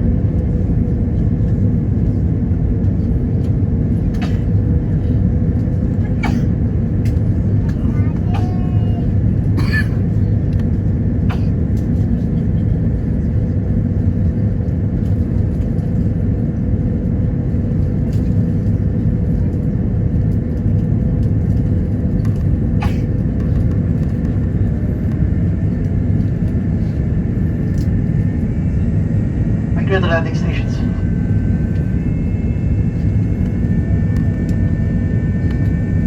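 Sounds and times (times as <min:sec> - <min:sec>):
airliner cabin rumble: 0:00.0 - 0:36.0.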